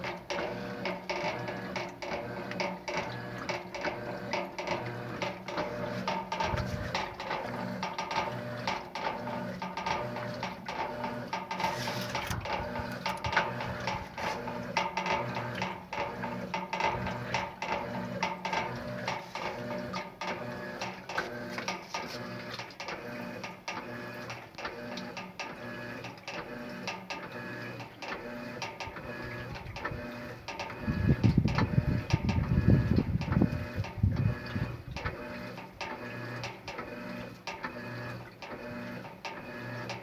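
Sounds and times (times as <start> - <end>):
washing machine drum knocking: 0.0 - 21.2
washing machine motor humming: 0.0 - 40.0.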